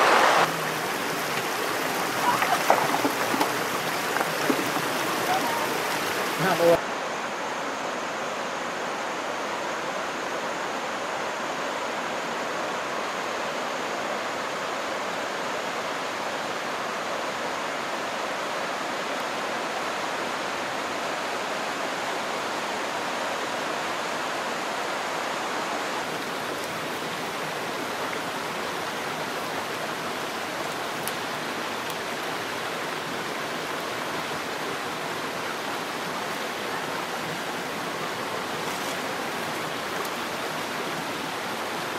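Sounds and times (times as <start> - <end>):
rushing river water: 0.0 - 41.9.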